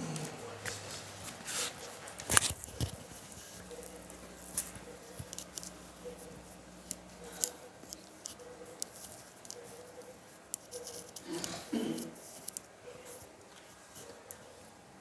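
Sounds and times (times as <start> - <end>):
objects clicking and rustling: 0.1 - 6.2.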